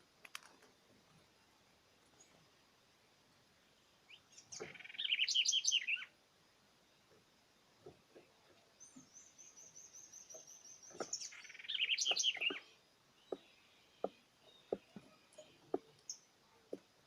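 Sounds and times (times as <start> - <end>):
songbird trilling and chirping: 3.8 - 6.2, 7.8 - 17.0.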